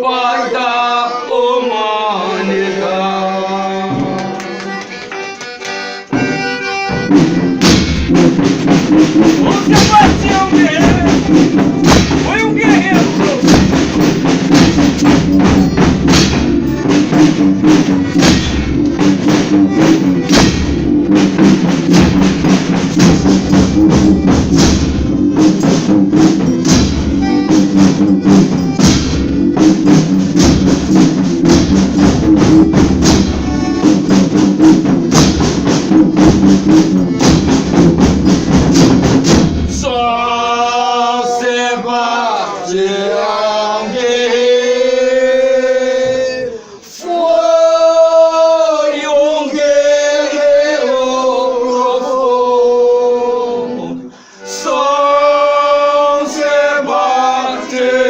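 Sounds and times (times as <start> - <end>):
man singing: 0.0 - 4.2, 9.4 - 11.3, 12.2 - 13.6, 39.8 - 42.0
tambourine and drum strokes: 6.9 - 39.9.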